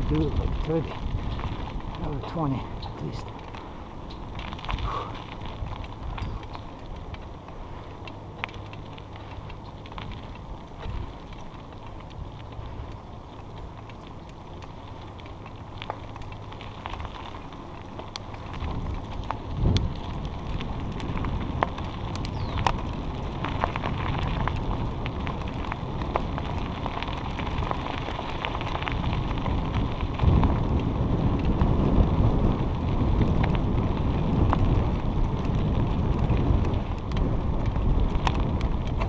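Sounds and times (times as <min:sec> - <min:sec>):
bicycle tyre noise: 0:00.0 - 0:39.0
small clicks and rattles: 0:00.0 - 0:39.0
wind buffeting microphone: 0:00.0 - 0:39.0.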